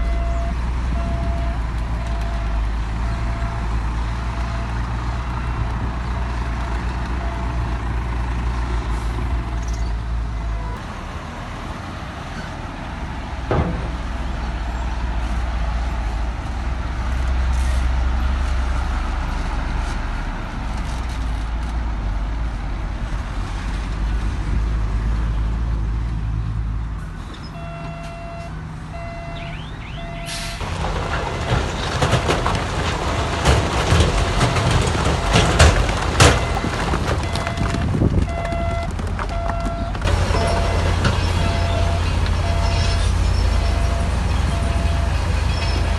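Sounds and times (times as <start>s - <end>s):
reversing alarm beeping: 0.0s - 3.7s, 27.5s - 30.6s, 36.2s - 45.8s
diesel machinery rumbling: 0.0s - 45.9s
rocks tumbling and knocking: 13.4s - 15.2s, 30.6s - 45.9s.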